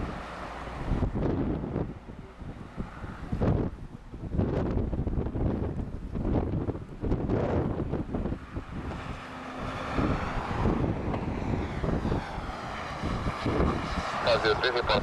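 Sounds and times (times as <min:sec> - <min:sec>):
wind buffeting microphone: 0:00.0 - 0:15.0
jet engines whooshing: 0:07.0 - 0:15.0.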